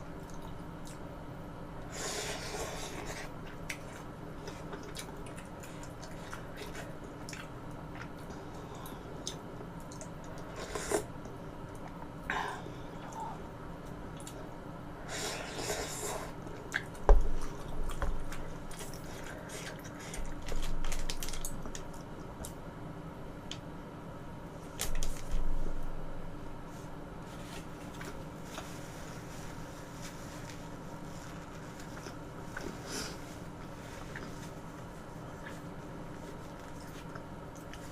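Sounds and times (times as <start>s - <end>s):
chewing and mouth clicks: 3.5s - 10.5s, 16.6s - 22.6s.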